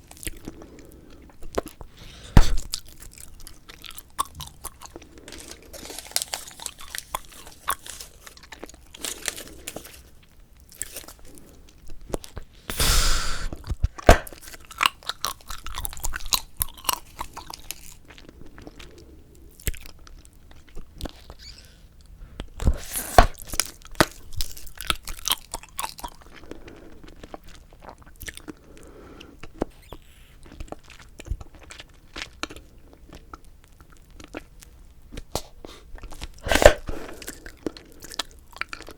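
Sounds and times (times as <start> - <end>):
gum chewing smacks: 0.0 - 9.9, 13.4 - 18.9
sharp gum snaps: 13.5 - 16.8.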